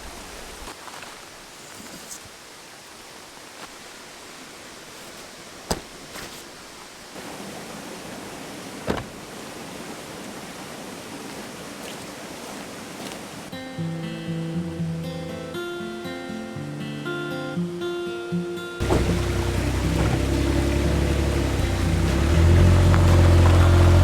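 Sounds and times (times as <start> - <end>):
mountain stream flowing: 0.0 - 13.8, 18.8 - 24.0.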